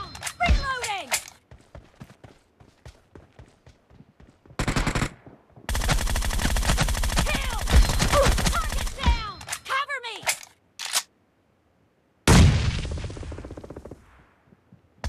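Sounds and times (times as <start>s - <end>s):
video game automatic gunfire: 4.6s - 9.0s
falling pings: 7.6s - 9.6s.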